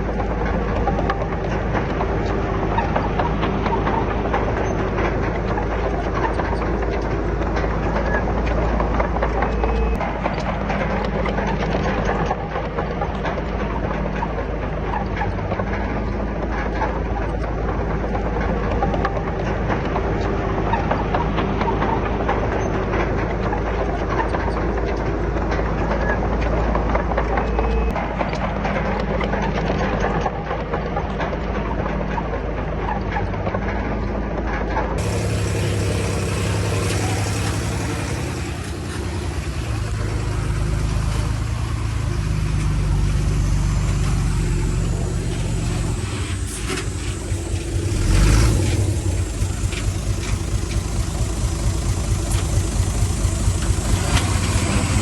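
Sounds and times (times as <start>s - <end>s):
heavy diesel engines running: 0.0s - 55.0s
engine revving: 35.0s - 55.0s.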